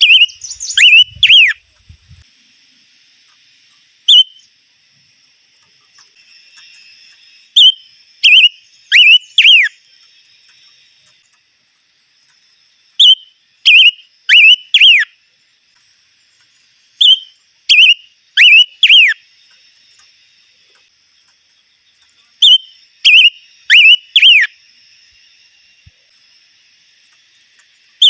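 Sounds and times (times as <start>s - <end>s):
bird singing whistled phrases: 0.0s - 1.6s, 4.0s - 4.5s, 7.5s - 9.8s, 13.0s - 15.2s, 17.0s - 19.2s, 22.4s - 24.6s.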